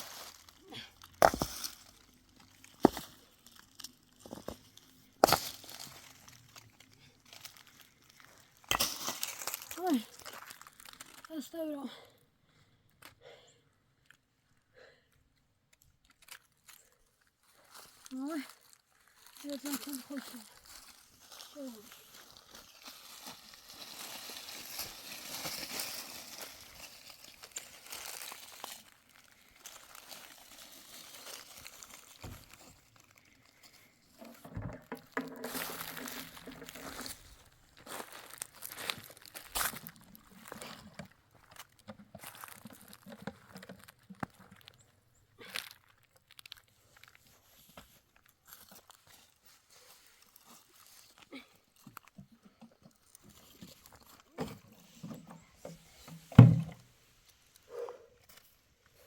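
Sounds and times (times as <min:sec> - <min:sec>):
rustling and handling noises: 0:16.0 - 0:44.9
small knocks: 0:56.2 - 0:56.8.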